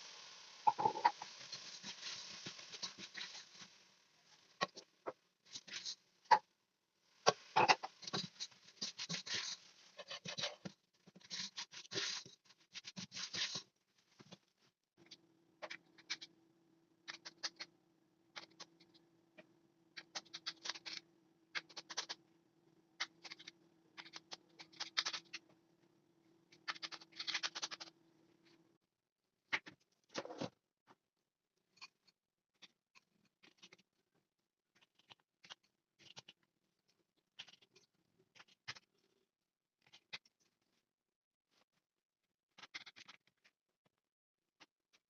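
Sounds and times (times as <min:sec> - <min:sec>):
faint steady hum: 0:00.0 - 0:28.8
food preparation rustles and scrapes: 0:00.7 - 0:06.1, 0:07.2 - 0:14.8.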